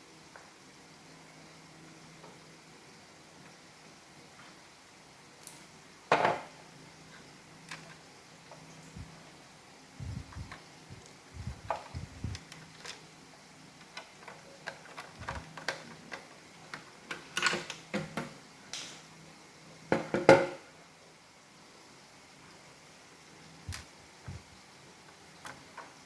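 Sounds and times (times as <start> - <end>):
plastic parts clicking and knocking: 13.8 - 18.4.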